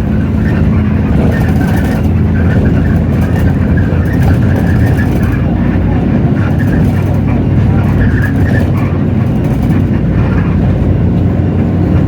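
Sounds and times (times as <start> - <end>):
bus diesel engine droning: 0.0 - 12.0
light clicking and rattling: 6.4 - 10.4.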